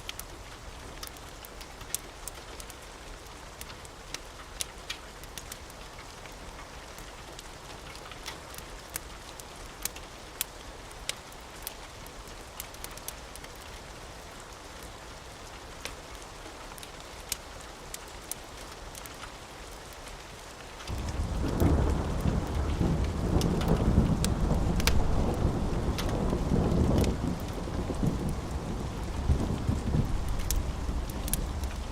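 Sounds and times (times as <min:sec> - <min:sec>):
steady rain: 0:00.0 - 0:31.9
wood fire crackling: 0:00.0 - 0:31.9
thunder rolling: 0:20.9 - 0:31.9.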